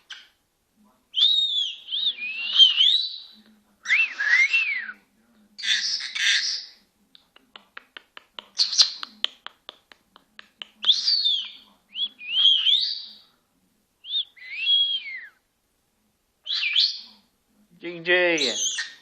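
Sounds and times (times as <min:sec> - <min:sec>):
parrot whistled calls: 0:01.2 - 0:03.2, 0:10.9 - 0:13.1, 0:14.0 - 0:15.4, 0:16.5 - 0:17.0.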